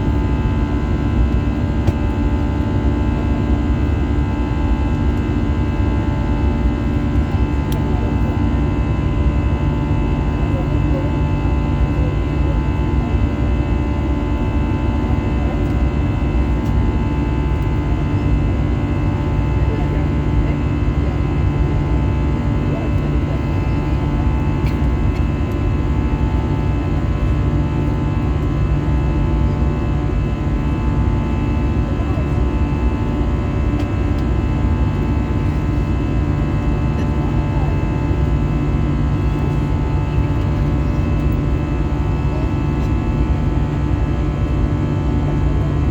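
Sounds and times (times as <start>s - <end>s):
aircraft engine rumble: 0.0s - 45.9s.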